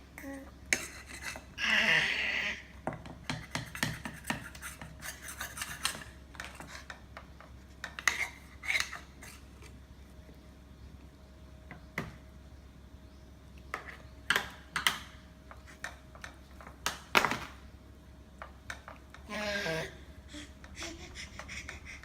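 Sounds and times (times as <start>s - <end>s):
spoon scraping a dish: 0.7s - 1.5s, 3.4s - 7.0s, 7.8s - 9.7s
baby vocalizing: 19.3s - 22.0s.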